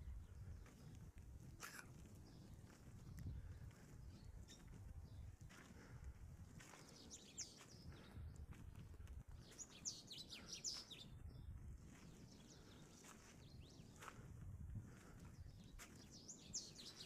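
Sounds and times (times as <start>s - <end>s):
faint bird chirps: 3.9s - 4.8s, 9.5s - 11.5s.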